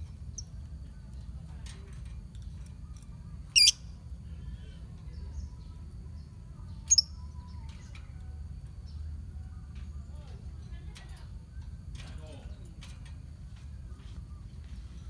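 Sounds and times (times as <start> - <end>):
low steady hum: 0.0 - 15.0
faint bird chirping: 2.6 - 15.0
shrill bird calls: 3.6 - 3.8.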